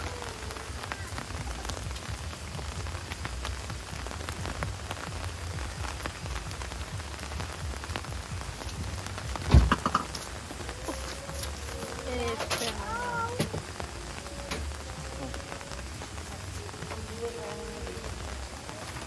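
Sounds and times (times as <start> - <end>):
heavy rain: 0.0 - 19.0
raindrops ticking: 0.0 - 19.0.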